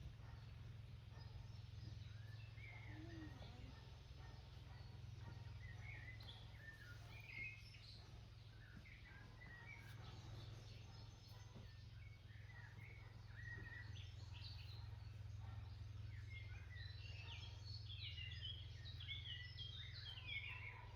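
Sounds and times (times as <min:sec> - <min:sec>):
songbirds chirping: 0:00.0 - 0:20.9.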